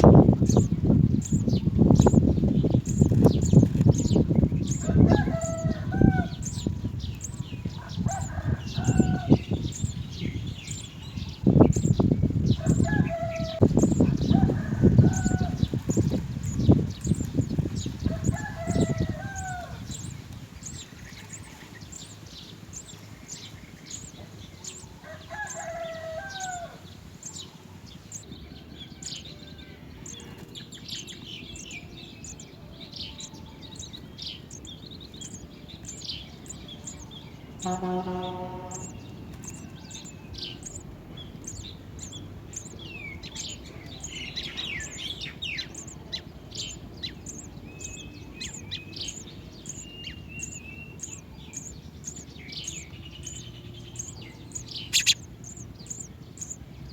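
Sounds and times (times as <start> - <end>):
lower bird calls: 0.0 - 56.9
sparrows chirping: 0.0 - 56.9.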